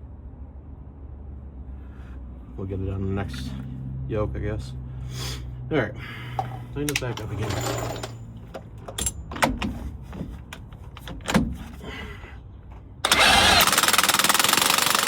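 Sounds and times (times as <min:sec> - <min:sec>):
metal clicks and knocks: 0:06.4 - 0:11.6
impact wrench hammering bolt: 0:13.1 - 0:15.0.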